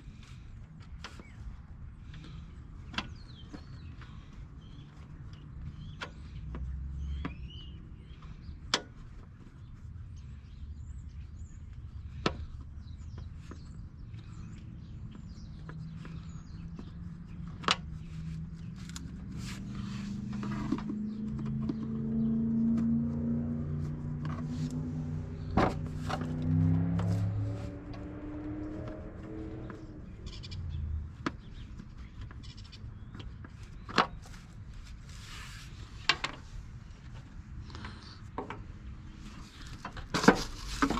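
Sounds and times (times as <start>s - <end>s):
low hum: 18.1s - 31.1s.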